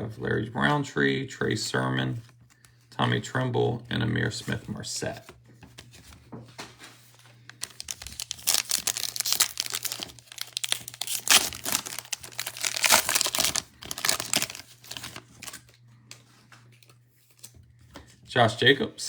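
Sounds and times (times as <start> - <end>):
wrapper tearing and crinkling: 7.5 - 15.7.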